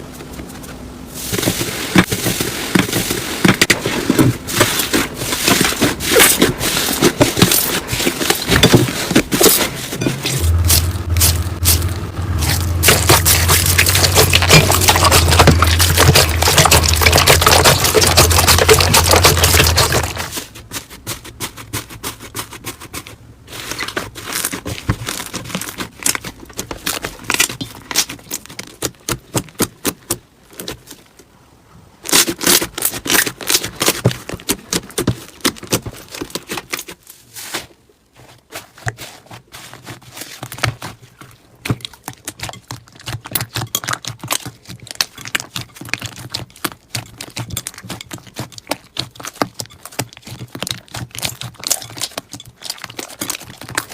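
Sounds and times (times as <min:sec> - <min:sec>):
slime crackling and popping: 0:10.3 - 0:20.4.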